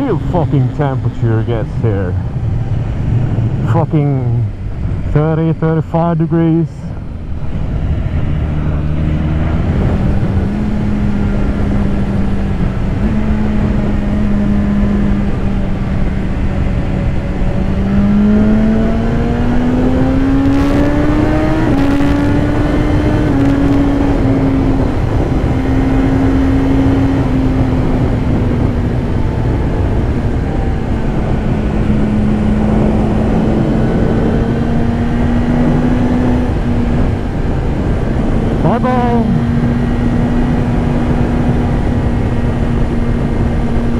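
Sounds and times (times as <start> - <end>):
wind noise: 0.0 - 5.7, 6.8 - 43.9.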